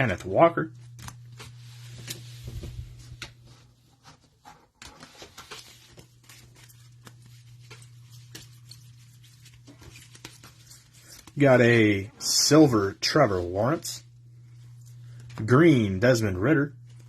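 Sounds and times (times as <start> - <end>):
low steady hum: 0.0 - 17.0
trading cards clicking and rustling: 4.9 - 11.6.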